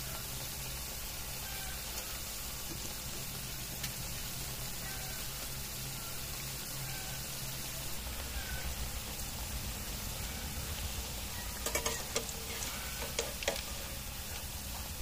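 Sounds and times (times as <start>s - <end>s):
food frying in hot oil: 0.0s - 15.0s.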